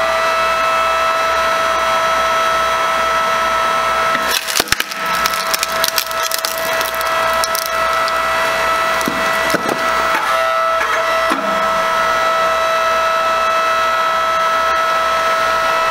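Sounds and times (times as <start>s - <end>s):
log splitter motor humming: 1.3s - 15.9s
log cracking and splintering: 4.2s - 9.9s.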